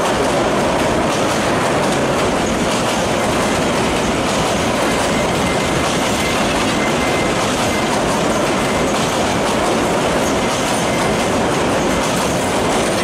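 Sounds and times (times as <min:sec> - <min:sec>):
train wheels rattling on rails: 0:00.0 - 0:13.0.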